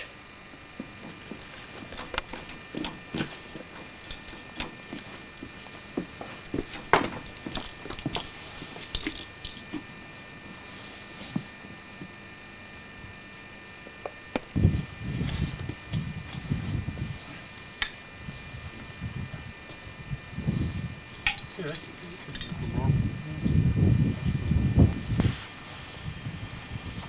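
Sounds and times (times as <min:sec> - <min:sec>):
muffled low rumble: 0:18.2 - 0:25.4.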